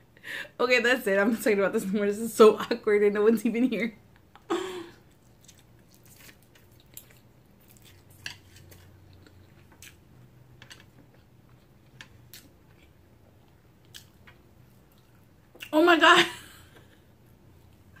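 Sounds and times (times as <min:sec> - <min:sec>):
chewing noodles: 0:05.1 - 0:10.0.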